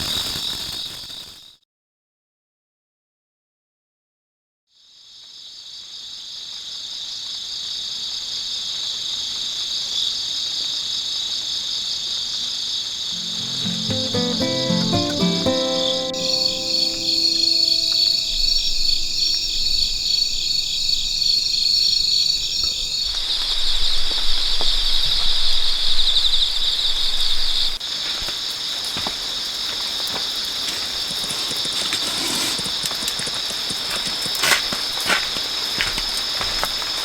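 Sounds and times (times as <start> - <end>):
faint music: 13.2 - 19.4.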